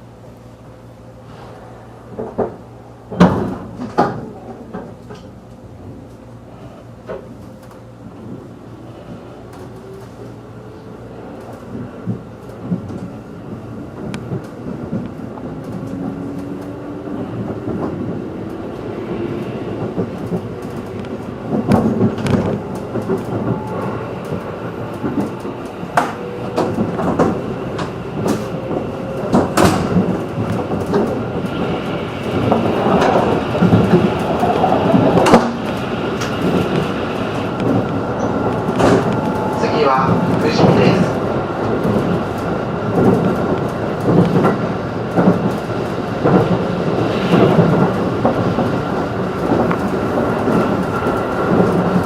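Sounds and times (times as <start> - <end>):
wheels clicking over rail joints: 11.4 - 52.0.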